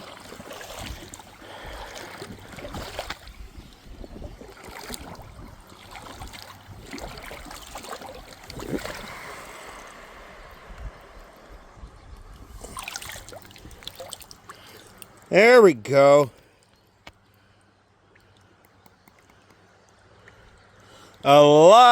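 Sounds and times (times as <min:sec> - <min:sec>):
small splashes and knocks: 0:00.0 - 0:03.5, 0:04.4 - 0:09.9, 0:12.6 - 0:15.3
creek water running: 0:00.0 - 0:21.9.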